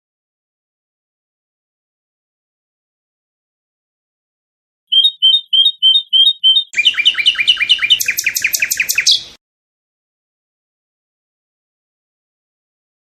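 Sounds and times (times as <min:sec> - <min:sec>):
nightingale singing: 0:04.9 - 0:09.4.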